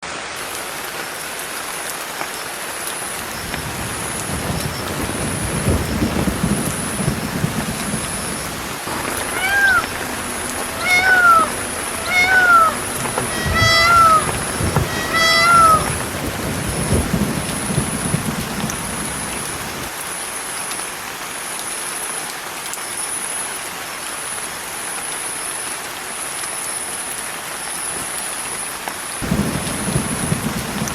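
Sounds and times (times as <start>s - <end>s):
steady hiss: 2.4s - 19.9s, 29.2s - 30.9s
low rumbling: 3.4s - 19.9s
cat meowing: 8.9s - 16.7s.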